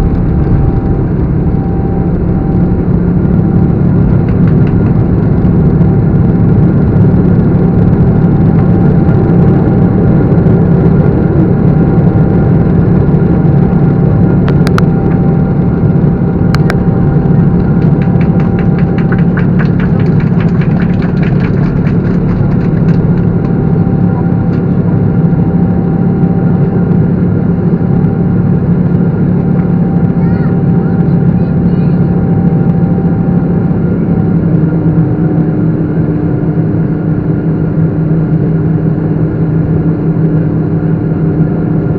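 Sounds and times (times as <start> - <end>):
engine whining tones: 0.0 - 35.4
jet engines rumbling: 0.0 - 41.9
fast rattling ticks: 17.5 - 23.6.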